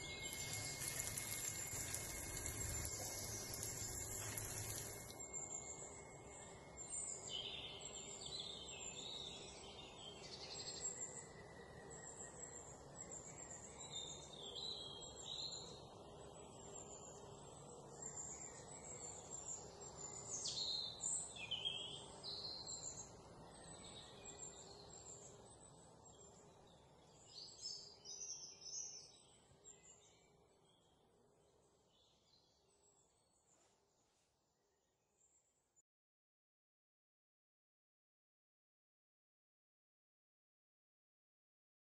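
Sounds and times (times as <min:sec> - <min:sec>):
low steady hiss: 0:00.0 - 0:10.3
small birds chirping: 0:00.0 - 0:31.0.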